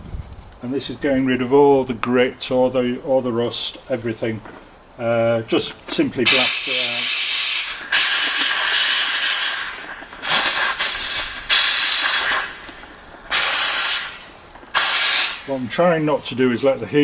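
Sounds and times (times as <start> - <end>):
steam cleaner jet hissing: 6.2 - 16.2.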